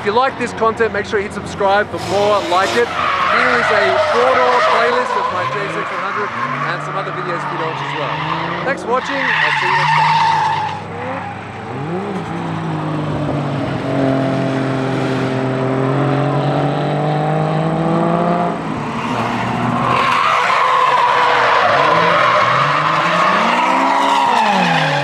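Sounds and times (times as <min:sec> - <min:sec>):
tyres squealing: 0:00.0 - 0:12.7, 0:18.8 - 0:25.0
car engine at high revs: 0:00.5 - 0:25.0.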